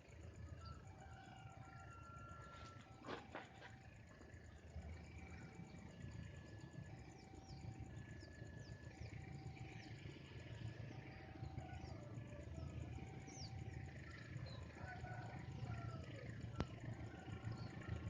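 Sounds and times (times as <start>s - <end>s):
small birds chirping: 4.3s - 18.0s.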